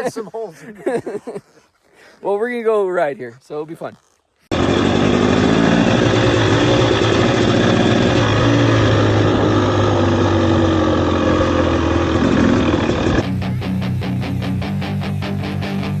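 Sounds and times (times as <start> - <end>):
dirt bike engine running: 4.5 - 16.0
guitar music: 13.2 - 16.0.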